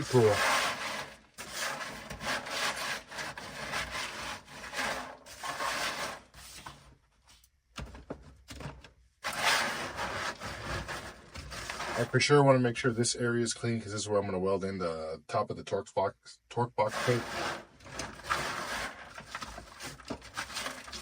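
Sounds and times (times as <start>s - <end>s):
brittle deadener scraping and cracking: 0.0s - 6.4s, 9.2s - 12.2s, 16.9s - 21.0s.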